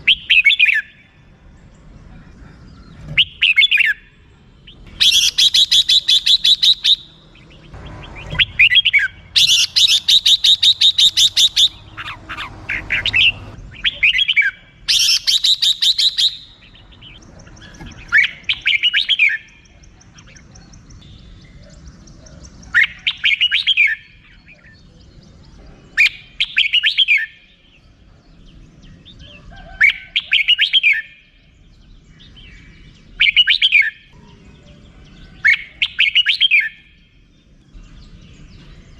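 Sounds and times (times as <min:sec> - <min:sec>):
bulbul rattling call: 0:04.7 - 0:24.6.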